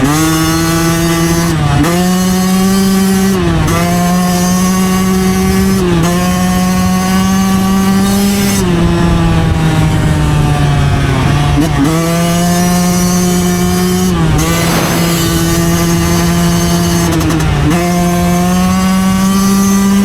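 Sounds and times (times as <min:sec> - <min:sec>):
dirt bike engine buzzing: 0:14.4 - 0:16.4.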